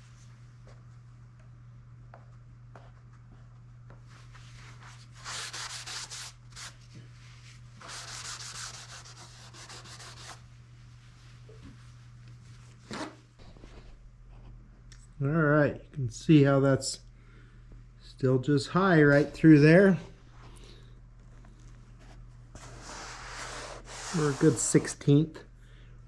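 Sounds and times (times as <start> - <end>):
wipes scrubbing plastic film: 22.6 - 24.7.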